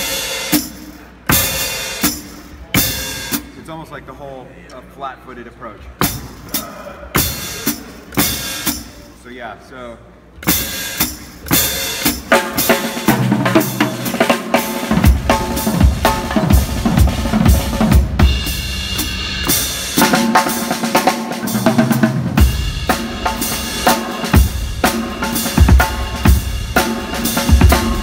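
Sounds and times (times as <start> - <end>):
drum kit groove: 0.0 - 3.7, 5.9 - 9.2, 10.4 - 28.0.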